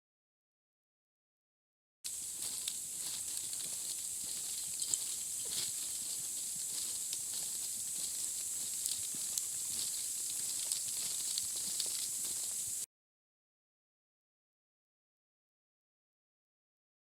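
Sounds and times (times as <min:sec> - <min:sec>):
faint ticks: 0:02.1 - 0:12.8
steady high hiss: 0:02.1 - 0:12.9.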